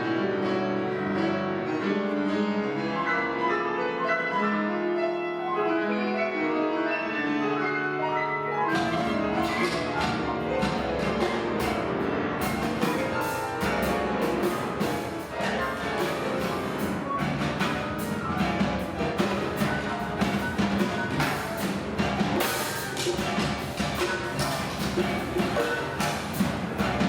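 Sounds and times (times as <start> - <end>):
piano: 0.0 - 27.0
drums and percussion striking: 8.7 - 27.0.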